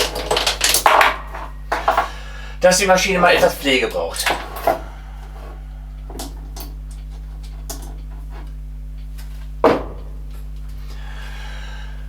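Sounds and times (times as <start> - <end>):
low electrical hum: 0.0 - 12.0
sharp breath: 10.8 - 12.0.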